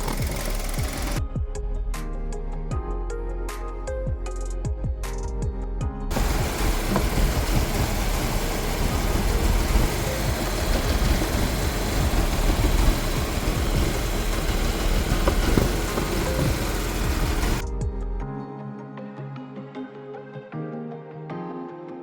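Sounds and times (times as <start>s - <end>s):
car engine idling: 0.0s - 1.2s, 6.1s - 17.6s.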